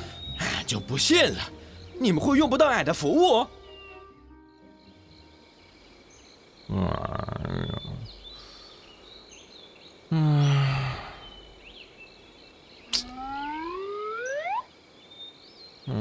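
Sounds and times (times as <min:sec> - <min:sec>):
faint bird chirps: 0:00.0 - 0:02.4, 0:03.0 - 0:16.0.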